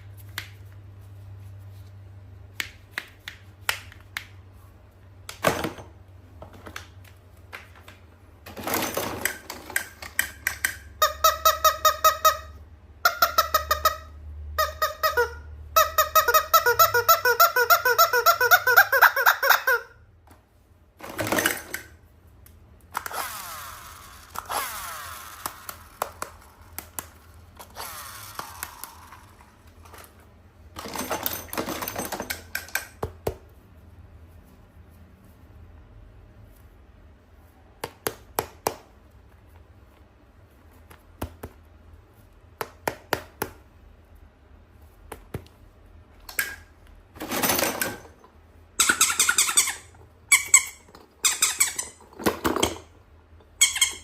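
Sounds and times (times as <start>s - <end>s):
toy squeaking: 9.8s - 20.0s, 48.8s - 52.8s, 53.4s - 54.0s
toys and packaging rustling: 21.0s - 22.0s.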